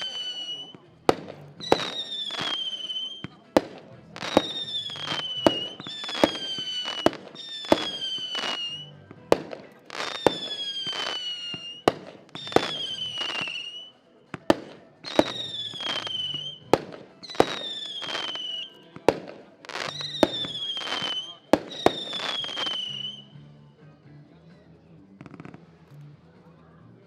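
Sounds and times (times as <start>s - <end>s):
firework whistle descending: 0.0s - 0.8s, 1.6s - 3.3s, 4.3s - 8.9s, 10.0s - 13.9s, 15.1s - 16.6s, 17.3s - 18.7s, 19.8s - 23.3s.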